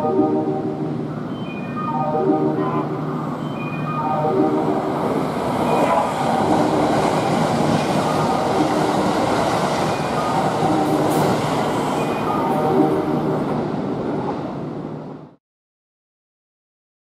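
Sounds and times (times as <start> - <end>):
train whine: 0.0 - 15.4
train wheels rushing on rails: 4.6 - 15.4.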